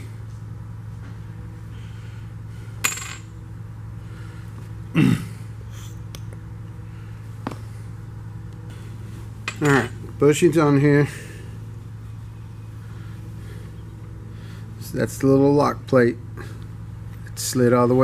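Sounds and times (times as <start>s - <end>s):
steady low hum: 0.0s - 18.0s
small metal parts clinking: 2.8s - 3.3s, 9.4s - 10.0s.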